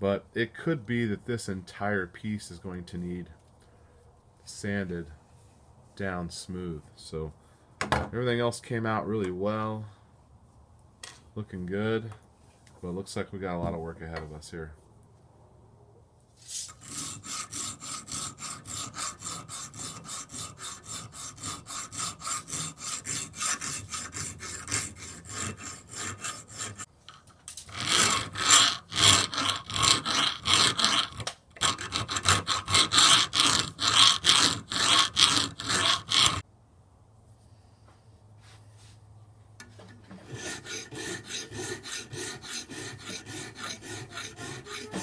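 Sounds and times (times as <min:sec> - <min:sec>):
scraping strokes on metal: 0:16.4 - 0:26.9, 0:27.6 - 0:36.4, 0:39.9 - 0:45.0.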